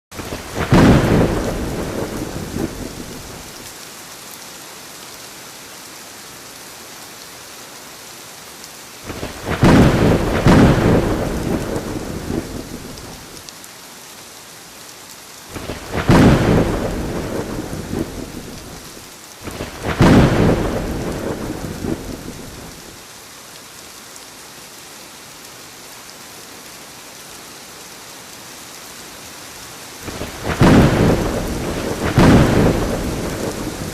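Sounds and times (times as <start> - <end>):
rain hissing: 0.1 - 33.9
thunder peals: 0.2 - 3.5, 9.1 - 13.2, 15.6 - 22.8, 30.1 - 33.9.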